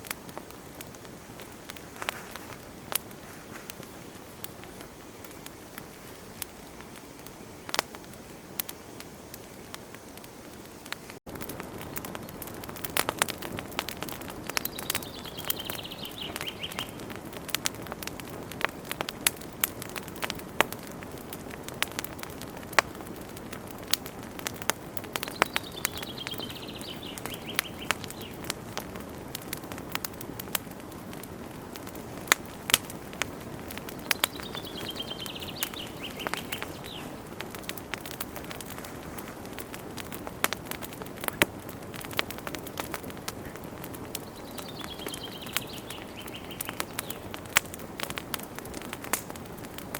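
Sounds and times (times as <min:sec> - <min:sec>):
wood fire crackling and popping: 0:00.0 - 0:49.9
bird singing: 0:14.4 - 0:17.1, 0:25.2 - 0:28.5, 0:33.9 - 0:37.3, 0:44.2 - 0:47.4.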